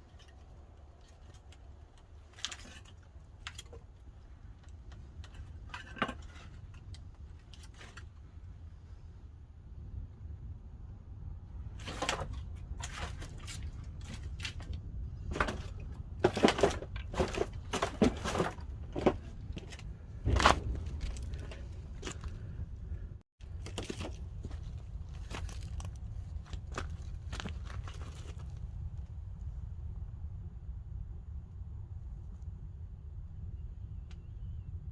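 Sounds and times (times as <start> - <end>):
low fire rumble: 0.0 - 34.9
firewood crackling and popping: 11.8 - 29.1.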